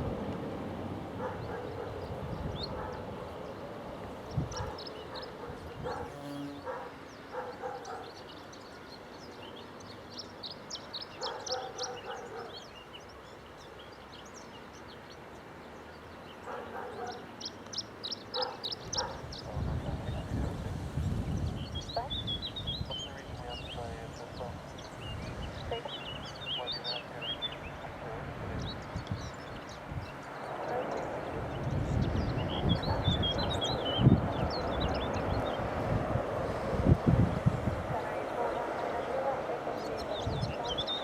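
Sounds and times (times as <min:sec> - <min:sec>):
distant dog barking: 0:01.2 - 0:03.4, 0:04.4 - 0:08.3, 0:11.1 - 0:12.8, 0:16.4 - 0:17.4, 0:18.3 - 0:20.7, 0:21.9 - 0:24.6, 0:25.6 - 0:28.8, 0:30.5 - 0:31.5, 0:32.4 - 0:34.6, 0:37.9 - 0:41.0
small birds chirping: 0:01.2 - 0:35.9, 0:37.7 - 0:41.0.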